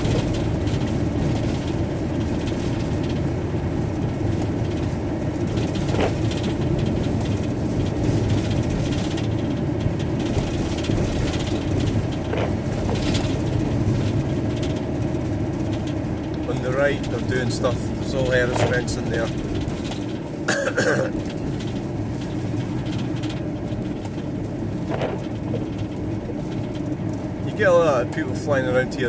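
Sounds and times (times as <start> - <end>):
van engine and tyre noise: 0.0 - 29.0.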